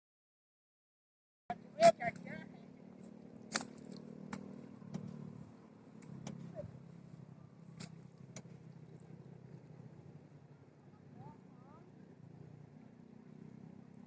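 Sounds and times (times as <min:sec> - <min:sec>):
tractor engine running: 0:01.5 - 0:14.0.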